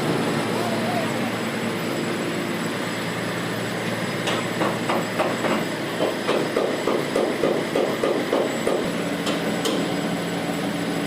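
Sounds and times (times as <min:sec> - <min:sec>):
machinery droning: 0:00.0 - 0:06.2.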